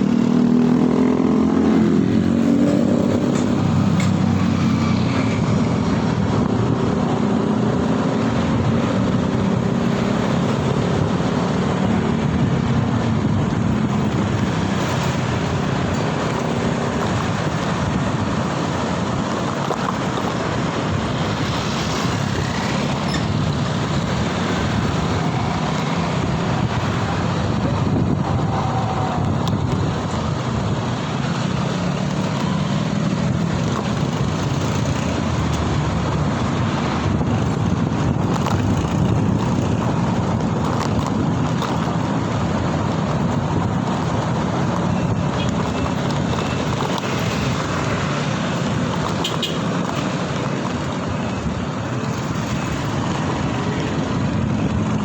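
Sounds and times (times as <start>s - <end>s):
road traffic noise: 0.0s - 55.0s
vehicle engines humming: 0.0s - 55.0s
wind buffeting the microphone: 0.0s - 55.0s.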